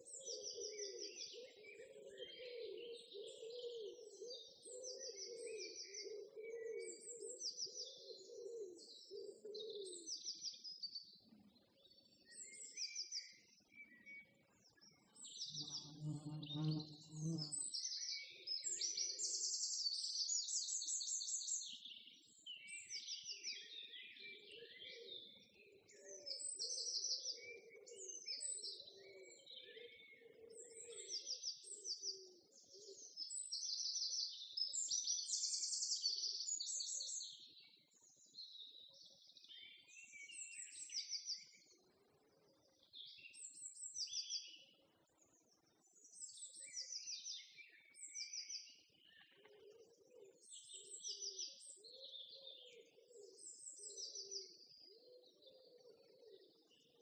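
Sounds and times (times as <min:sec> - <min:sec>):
songbirds singing and chirping: 0:00.0 - 0:57.0.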